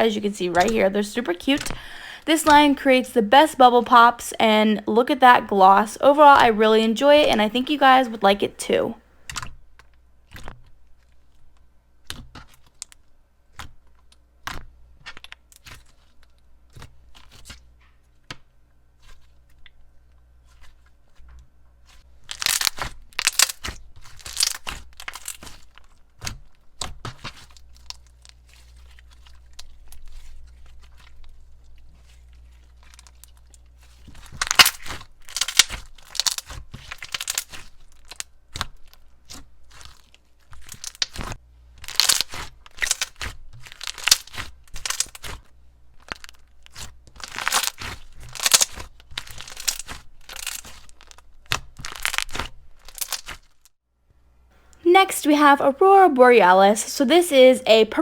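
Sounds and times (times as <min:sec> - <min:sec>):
slime squished by hand: 0:22.3 - 0:53.5.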